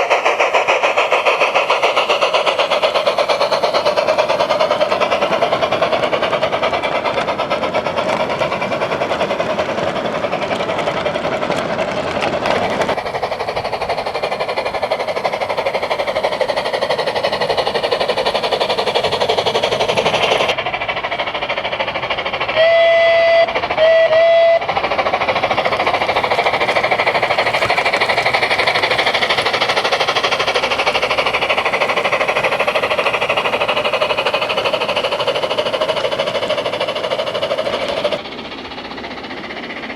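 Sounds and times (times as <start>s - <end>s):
electronic steam locomotive sound: 0.0s - 39.9s
train whistle blasts: 22.6s - 24.7s.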